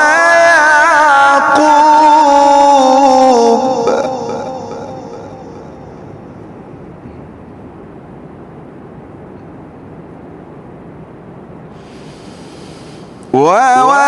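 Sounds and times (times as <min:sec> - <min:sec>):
person's voice echoing: 0:00.0 - 0:06.4, 0:12.0 - 0:14.0
low rumble and hiss: 0:00.0 - 0:14.0.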